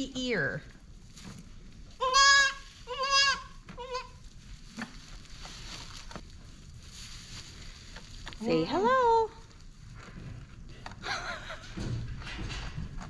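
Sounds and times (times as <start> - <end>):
goat kid bleating: 2.0 - 4.2.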